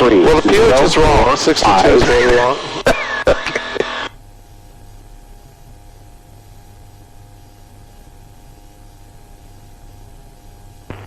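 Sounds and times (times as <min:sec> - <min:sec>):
light aircraft cockpit hiss and hum: 0:01.0 - 0:11.0
faint steady tones: 0:03.8 - 0:11.0.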